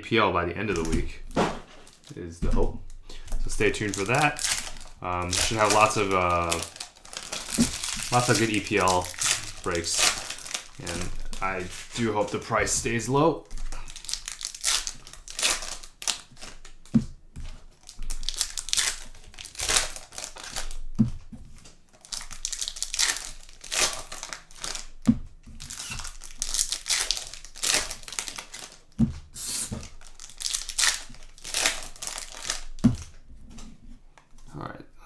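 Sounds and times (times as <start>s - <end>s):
plastic wrappers tearing and crinkling: 0.7s - 21.0s, 21.6s - 33.2s
low thump: 1.3s - 1.8s.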